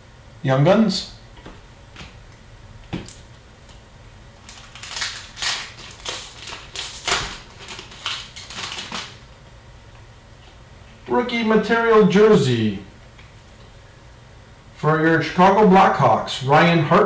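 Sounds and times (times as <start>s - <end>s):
card wrappers crinkling and rustling: 4.4s - 9.3s.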